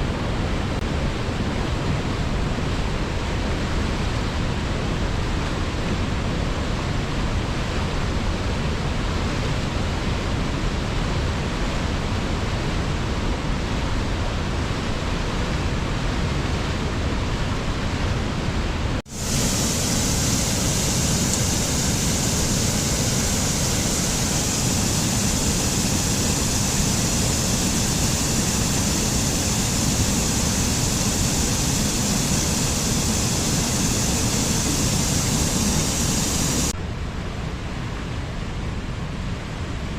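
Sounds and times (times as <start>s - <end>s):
rushing water: 19.0s - 36.8s.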